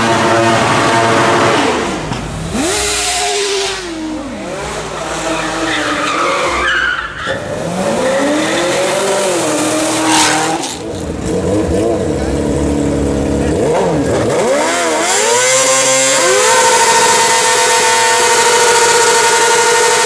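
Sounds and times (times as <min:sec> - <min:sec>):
motorcycle engine revving: 0:00.0 - 0:06.6, 0:07.3 - 0:20.0
tyre squealing on pavement: 0:00.5 - 0:12.7.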